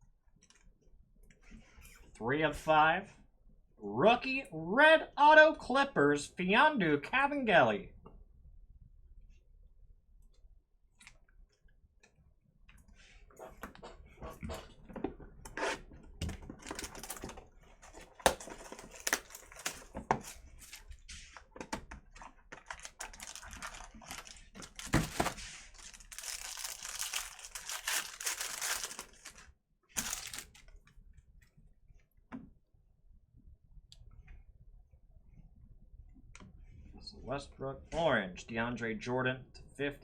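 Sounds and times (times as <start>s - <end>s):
card packaging tearing and crinkling: 16.4s - 20.9s, 22.5s - 30.6s.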